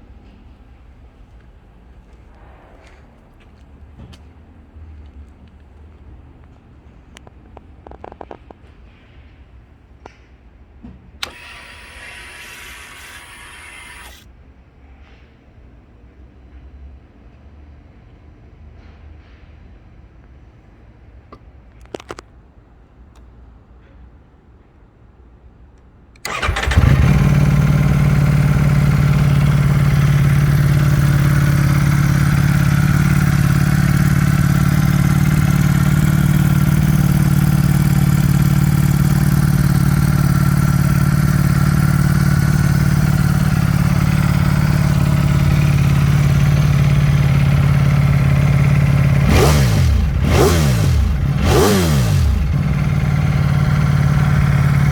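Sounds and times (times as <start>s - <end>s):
clicks: 11.2s - 14.2s, 26.2s - 27.3s
motorcycle engine idling and revving: 11.2s - 14.2s, 26.2s - 54.9s.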